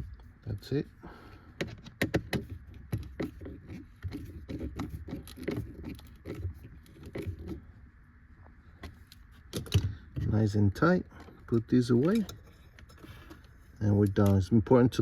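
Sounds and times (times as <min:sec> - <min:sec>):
hand tools clicking and scraping: 0:01.3 - 0:07.6, 0:11.1 - 0:14.5.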